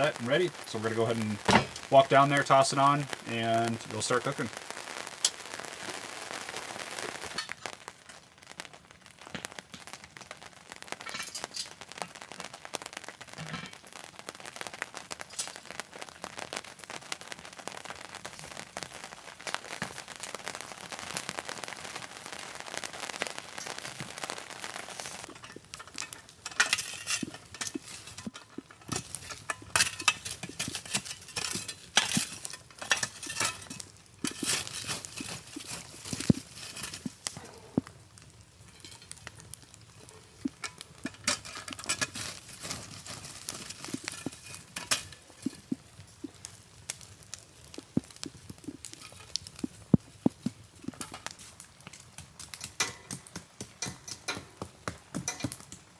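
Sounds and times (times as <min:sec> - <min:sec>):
rain pattering: 0:00.0 - 0:55.9
crackles and sharp clinks: 0:10.9 - 0:12.5, 0:23.1 - 0:55.9.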